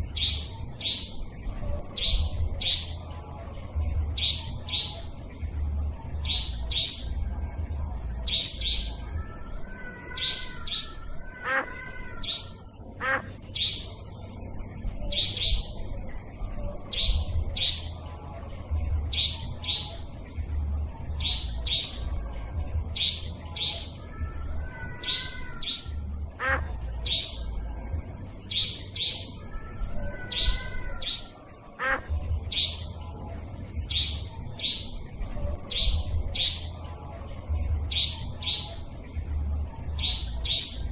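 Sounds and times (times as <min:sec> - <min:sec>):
nightjar calls: 0:00.0 - 0:01.3, 0:01.9 - 0:03.1, 0:04.2 - 0:05.2, 0:06.2 - 0:07.2, 0:08.2 - 0:14.2, 0:15.0 - 0:15.9, 0:16.9 - 0:18.0, 0:19.1 - 0:20.1, 0:21.2 - 0:22.1, 0:22.9 - 0:27.6, 0:28.5 - 0:33.0, 0:33.9 - 0:36.9, 0:37.9 - 0:38.9, 0:40.0 - 0:40.9
birds warbling softly: 0:00.0 - 0:40.9.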